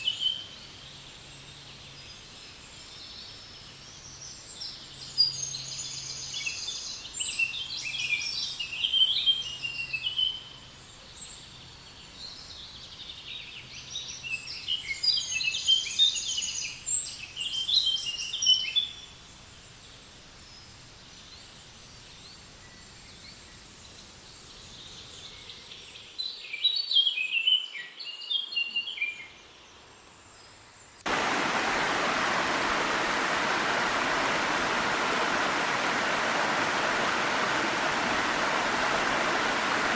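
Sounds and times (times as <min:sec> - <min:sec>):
faint background hiss: 0:00.0 - 0:39.9
songbirds chirping and trilling: 0:20.5 - 0:39.9
small waterfall rushing: 0:31.1 - 0:39.9.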